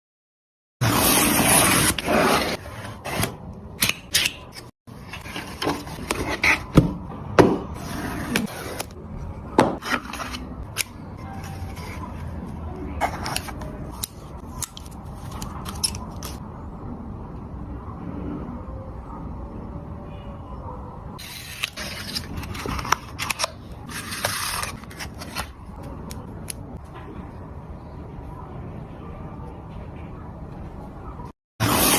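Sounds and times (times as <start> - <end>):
packaging rustling and scraping: 21.2 - 25.7.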